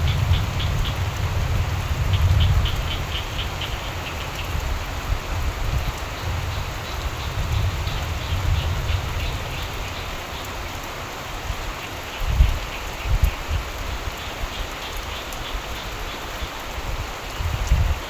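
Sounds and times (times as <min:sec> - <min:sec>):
steady rain falling: 0:00.0 - 0:18.0
rapid frog calls: 0:02.1 - 0:04.5.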